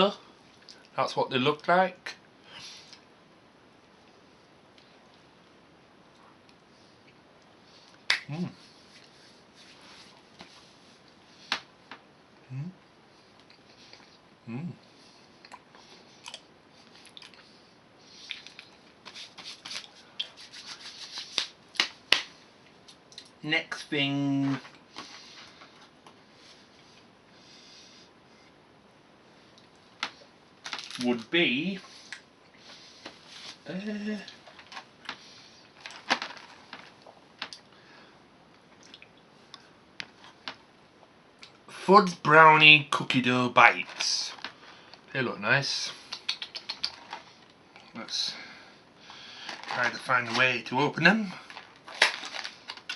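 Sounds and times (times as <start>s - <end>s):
person humming: 12.5s - 12.8s, 14.5s - 14.8s
plastic packaging crinkling: 30.6s - 31.3s, 34.3s - 37.6s, 49.4s - 50.6s, 51.2s - 52.9s.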